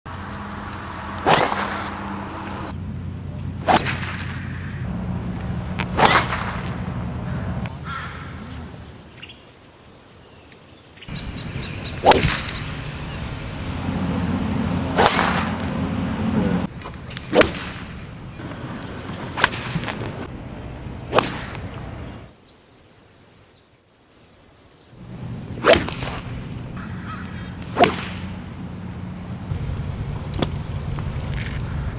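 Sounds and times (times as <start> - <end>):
golf club striking ball: 0.7 - 7.7, 11.6 - 18.0, 25.6 - 29.3.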